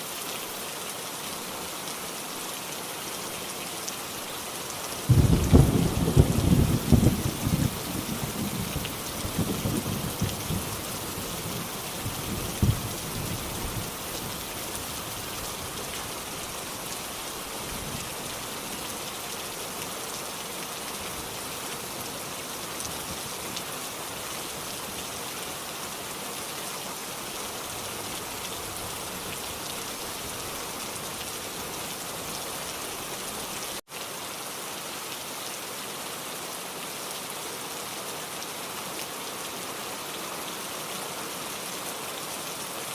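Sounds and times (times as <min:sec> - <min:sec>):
steady rain: 0:00.0 - 0:42.9
sharp thunder crack: 0:05.1 - 0:08.1
thunder rumbling: 0:05.1 - 0:14.0.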